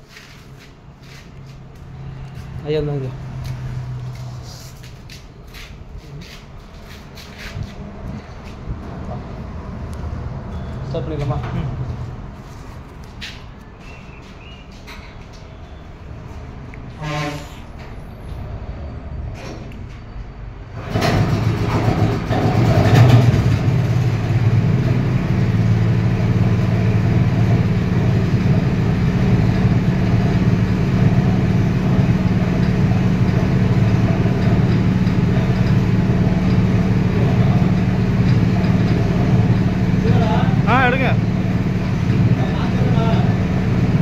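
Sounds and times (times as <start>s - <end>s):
petrol engine running: 20.7s - 44.0s.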